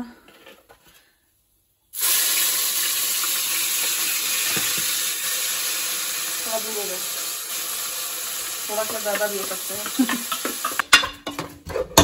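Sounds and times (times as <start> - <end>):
paste sizzling in hot oil: 1.9 - 10.9.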